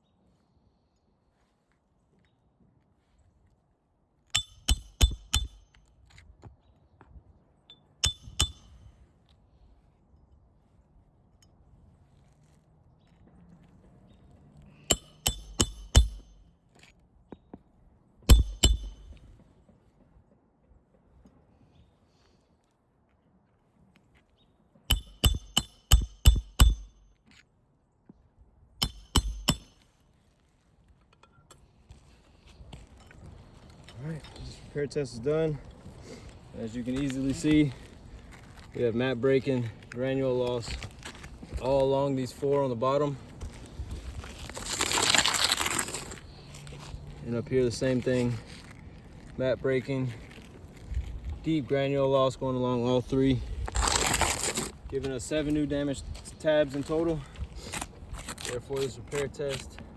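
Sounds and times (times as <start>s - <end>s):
hammer striking a nail: 4.4s - 5.8s, 8.0s - 8.8s, 14.9s - 16.4s, 18.3s - 19.3s, 24.9s - 27.1s, 28.8s - 29.8s.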